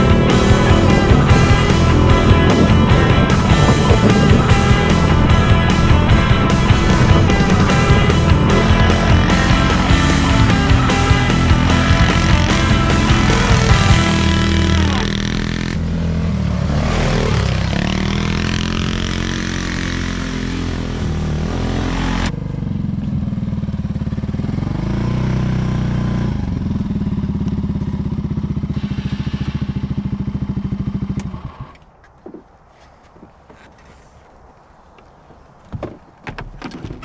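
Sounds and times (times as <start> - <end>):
off-road vehicle engine running: 0.0 - 31.8.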